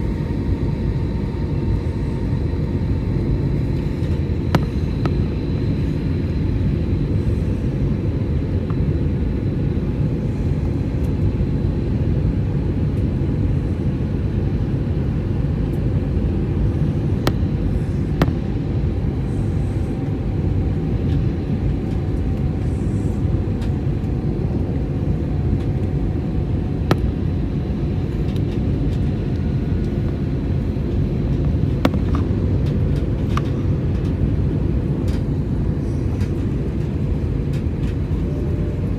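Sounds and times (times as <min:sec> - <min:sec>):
faint steady whines: 0:00.0 - 0:38.9
low rumble of engines and airflow: 0:00.0 - 0:38.9.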